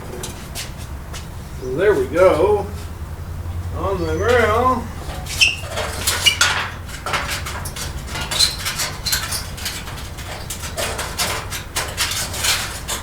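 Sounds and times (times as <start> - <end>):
short squeaks: 4.2 - 11.2
metallic clicks and scrapes: 5.0 - 13.0.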